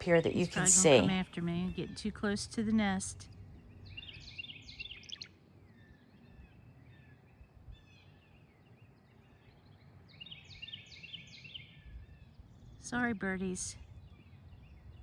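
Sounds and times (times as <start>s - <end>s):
faint low rumble: 0.0s - 10.1s
swallows chirping: 3.8s - 15.0s.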